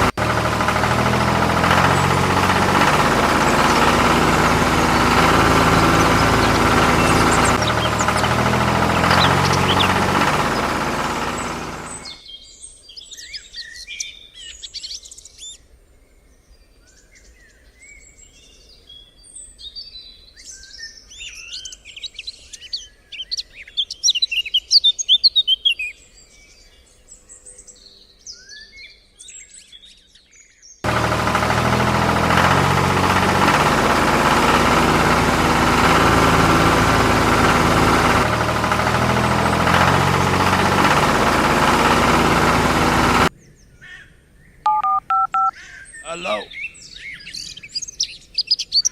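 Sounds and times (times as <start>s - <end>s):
engine running: 0.0s - 12.2s, 30.8s - 43.3s, 44.7s - 45.5s
birds chirping and trilling: 1.8s - 15.6s, 45.6s - 48.9s.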